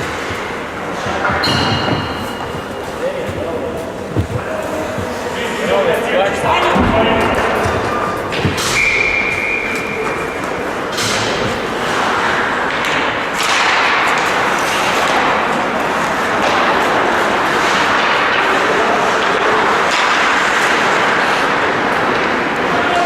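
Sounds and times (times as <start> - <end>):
knocks: 0.0 - 5.3, 6.4 - 9.4
ice hockey game noise: 0.0 - 23.0.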